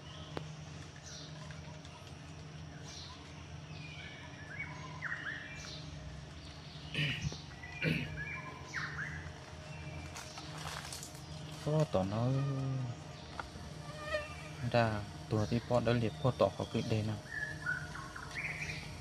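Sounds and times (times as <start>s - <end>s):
high falling bird call: 6.8s - 9.2s.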